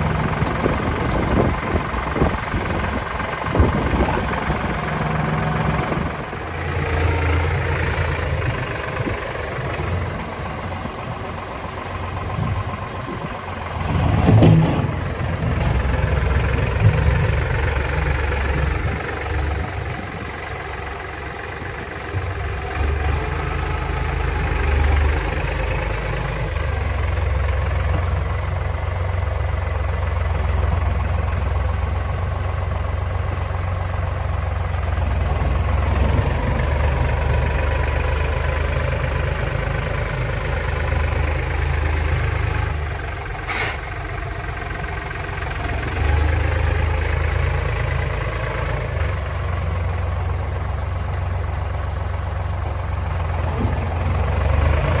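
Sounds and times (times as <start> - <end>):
tractor diesel engine drone: 0.0 - 55.0.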